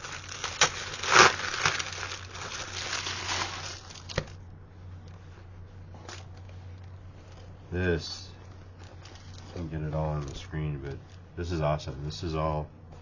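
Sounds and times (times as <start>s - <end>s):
crinkly wrapping rustling: 0.0s - 4.4s, 8.4s - 11.2s.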